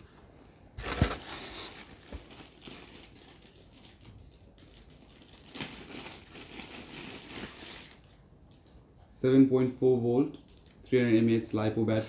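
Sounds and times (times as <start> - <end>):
packaging rustling and crinkling: 0.8 - 8.7.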